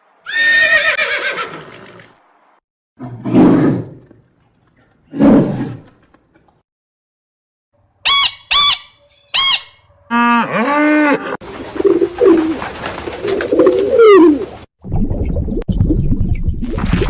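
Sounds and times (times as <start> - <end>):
short high chirps: 8.1 - 9.8.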